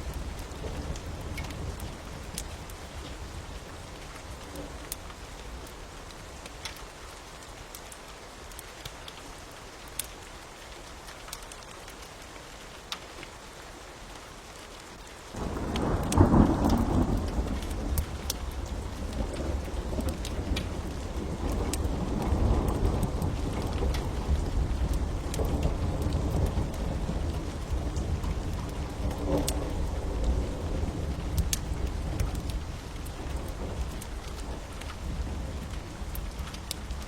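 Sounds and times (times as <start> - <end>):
fire crackling: 0.0 - 10.3, 15.3 - 37.0
steady rain: 0.0 - 37.0
thunder rumbling: 15.4 - 37.0.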